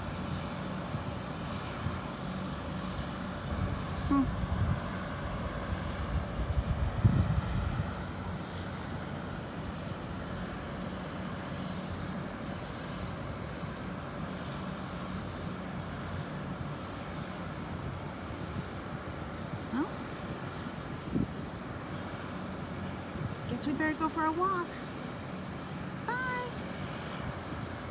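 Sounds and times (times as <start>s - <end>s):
diesel engines humming: 8.2s - 27.9s.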